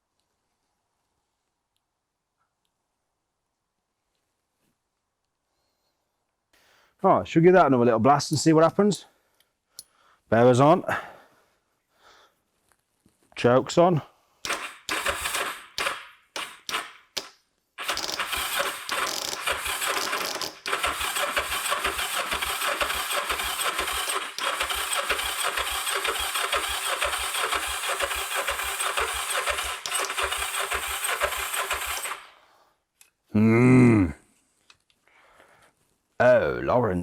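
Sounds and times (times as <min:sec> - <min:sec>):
engine starter cranking: 0:14.4 - 0:32.4.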